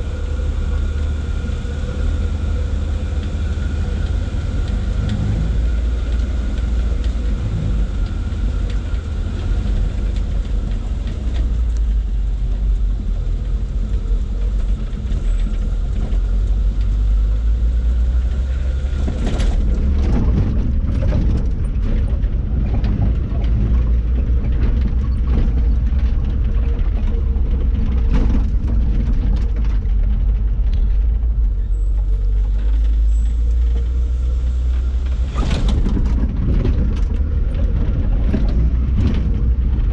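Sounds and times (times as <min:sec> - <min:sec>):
truck engine droning: 0:00.0 - 0:39.9
sharp knocks and rattles: 0:18.9 - 0:31.6, 0:35.1 - 0:39.9.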